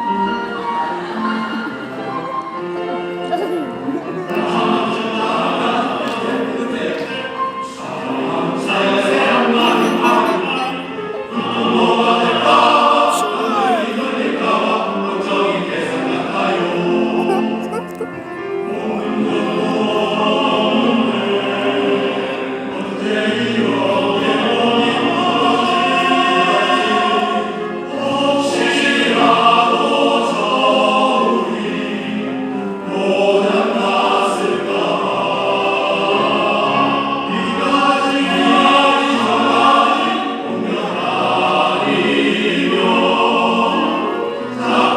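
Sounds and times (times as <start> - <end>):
men's choir singing: 0.0 - 44.9.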